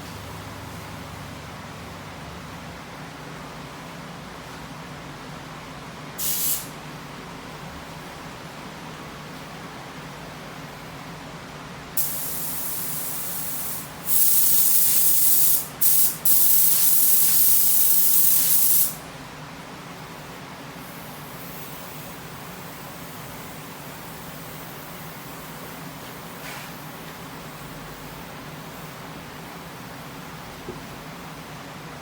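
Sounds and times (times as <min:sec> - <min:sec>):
spray gun hissing: 0:06.2 - 0:06.7, 0:12.0 - 0:19.0.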